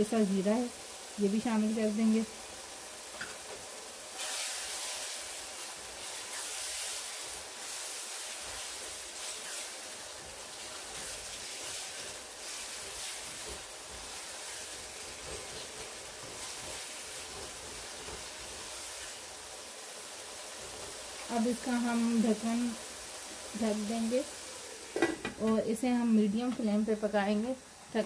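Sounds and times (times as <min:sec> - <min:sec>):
meat sizzling in a pot: 0:00.0 - 0:28.0
spatula stirring: 0:04.2 - 0:19.2.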